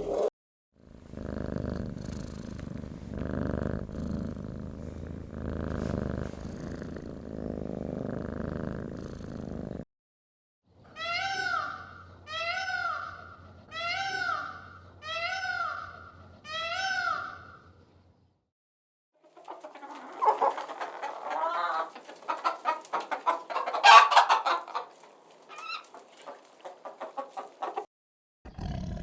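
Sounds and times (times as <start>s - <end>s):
cat purring: 0.8s - 9.9s.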